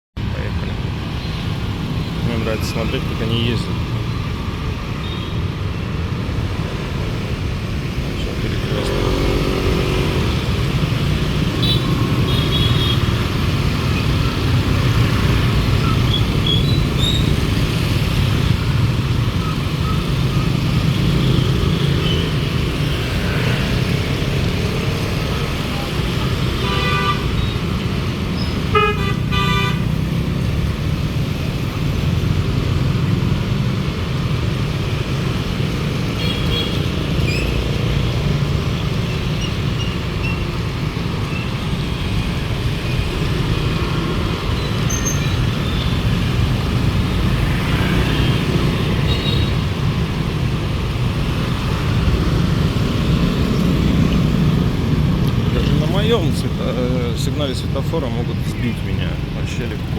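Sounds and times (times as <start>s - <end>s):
city road traffic: 0.1s - 59.9s
car horns tooting: 26.5s - 27.7s, 28.7s - 30.0s.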